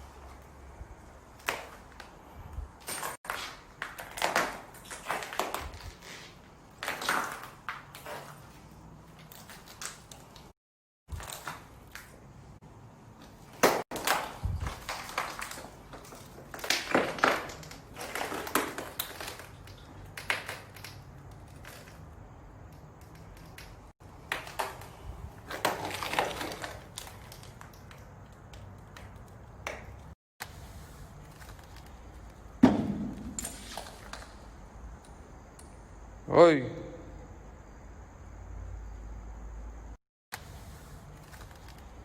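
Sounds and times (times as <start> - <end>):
crunching and clattering: 13.2 - 30.2
sharp knocks: 32.6 - 33.4.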